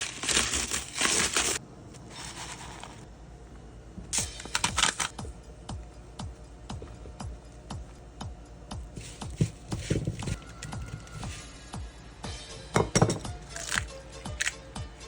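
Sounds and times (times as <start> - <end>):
music with thumping beat: 5.1 - 13.5.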